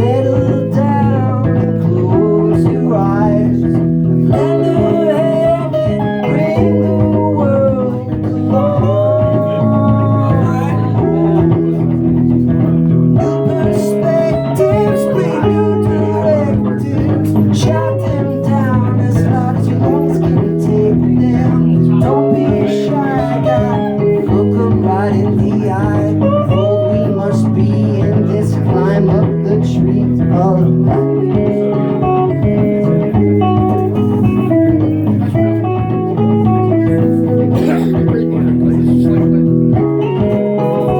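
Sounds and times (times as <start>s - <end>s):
electric guitar melody: 0.0s - 40.9s
looped guitar and bass pattern: 0.0s - 40.9s.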